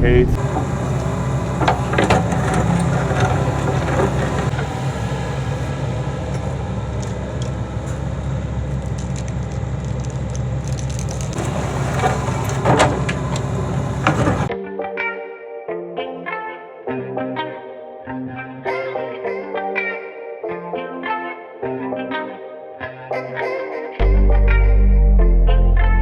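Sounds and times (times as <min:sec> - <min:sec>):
excavator diesel engine running: 0:00.0 - 0:14.5.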